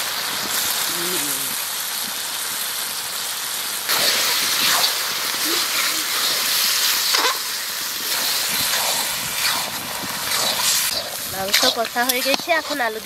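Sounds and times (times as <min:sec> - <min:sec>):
chicken sizzling in a pan: 0:00.0 - 0:13.0
spatula scraping a pan: 0:08.1 - 0:13.0.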